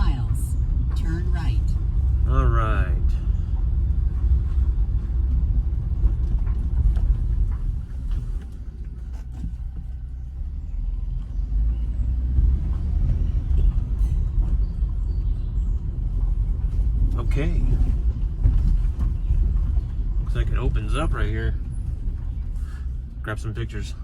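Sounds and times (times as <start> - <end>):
road and engine rumble in vehicle: 0.0 - 24.0.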